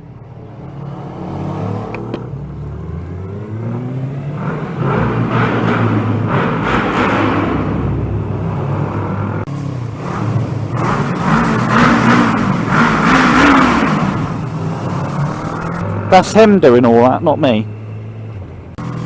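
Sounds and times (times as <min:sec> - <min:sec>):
motorcycle engine running: 0:09.2 - 0:16.6, 0:17.2 - 0:19.0.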